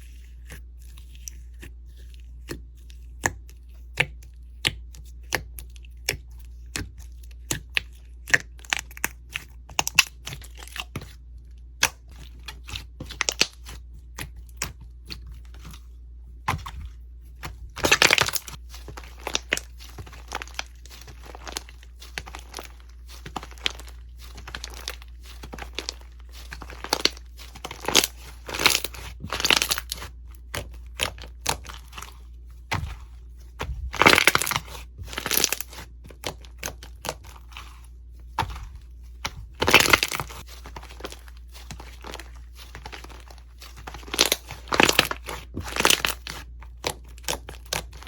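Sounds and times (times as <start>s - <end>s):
slime crackling and popping: 11.7s - 14.8s, 17.4s - 32.1s, 33.6s - 37.6s, 38.4s - 48.0s.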